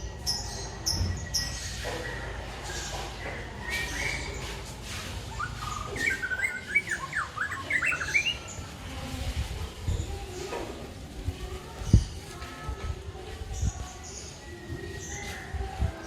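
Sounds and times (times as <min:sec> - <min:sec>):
bird singing varied chirps: 0:05.3 - 0:08.7.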